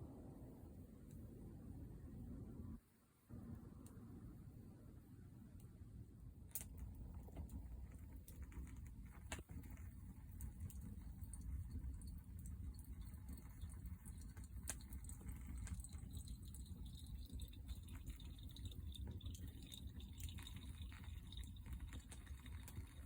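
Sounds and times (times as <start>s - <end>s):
low rumble of fire: 0.0s - 23.0s
wood fire crackling: 6.5s - 23.0s.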